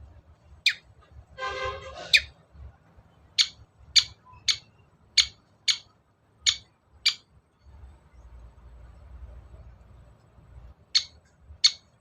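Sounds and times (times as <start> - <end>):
bird giving harsh scratchy notes: 1.4 - 2.4.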